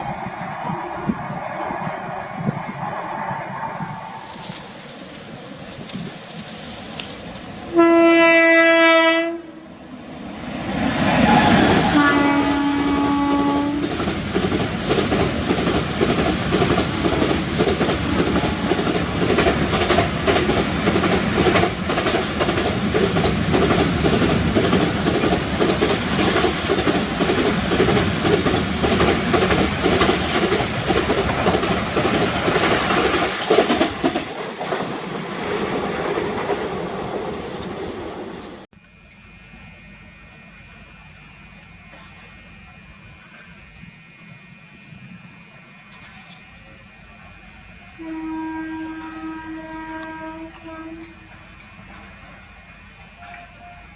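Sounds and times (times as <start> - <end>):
train horn blasts: 7.7 - 9.7, 11.2 - 13.9, 47.9 - 51.4, 53.1 - 53.9
train wheels clattering on rails: 10.8 - 38.6.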